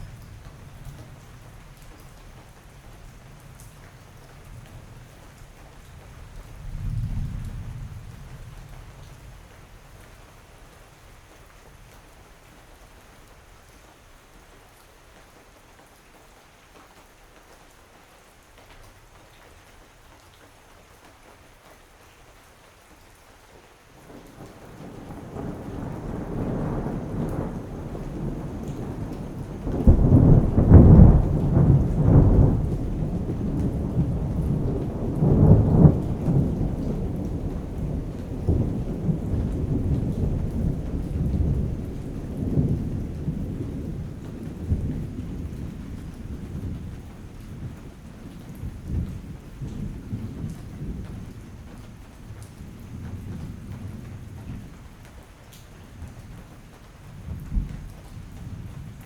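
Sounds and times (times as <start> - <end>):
rain falling: 0.0 - 59.0
thunder rumbling: 6.2 - 10.1, 24.1 - 54.7, 57.2 - 59.0.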